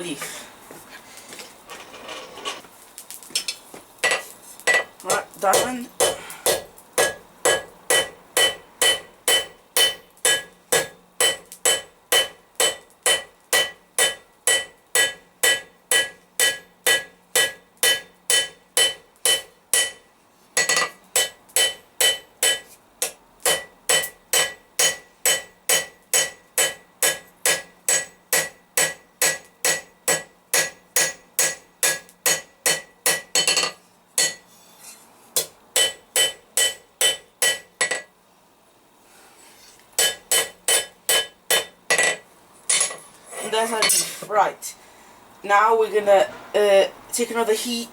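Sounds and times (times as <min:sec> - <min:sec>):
hammer striking steel on anvil: 0:04.0 - 0:34.4, 0:35.4 - 0:38.1, 0:40.0 - 0:43.0.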